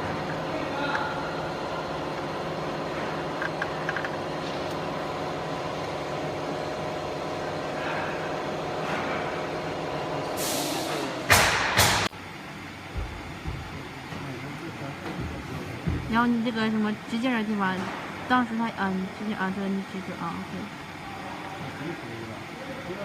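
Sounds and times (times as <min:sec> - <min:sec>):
steady machine hum: 0:00.0 - 0:23.0
loud hissing bursts: 0:10.4 - 0:12.0.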